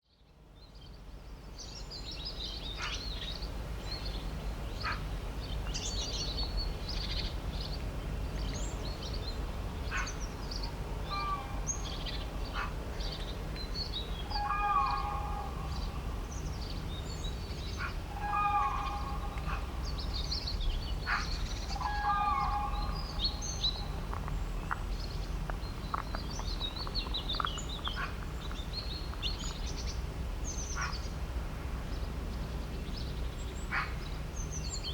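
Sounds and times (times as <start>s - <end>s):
birds chirping and singing: 8.4s - 31.1s
loud low bird call: 14.2s - 16.1s, 17.7s - 20.0s, 21.0s - 24.0s.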